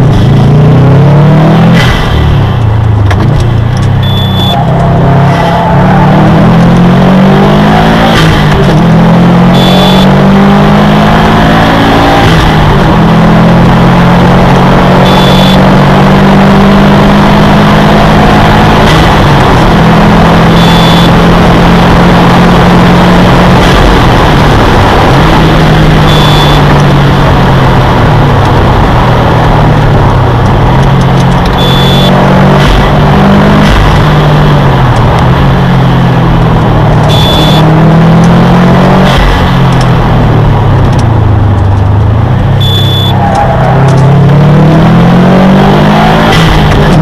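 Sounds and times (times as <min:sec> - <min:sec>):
car engine accelerating and shifting: 0:00.0 - 0:47.0
road and wind noise: 0:00.0 - 0:47.0
short electronic beep: 0:04.0 - 0:04.7, 0:09.5 - 0:10.2, 0:15.0 - 0:15.8, 0:20.5 - 0:21.2, 0:26.0 - 0:26.8, 0:31.6 - 0:32.2, 0:37.1 - 0:37.8, 0:42.6 - 0:43.2.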